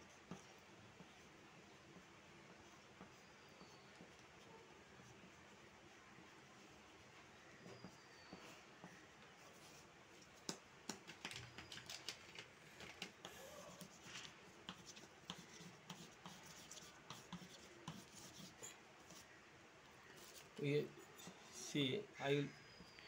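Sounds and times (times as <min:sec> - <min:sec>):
drawing tool scratching on paper: 0:13.0 - 0:19.3.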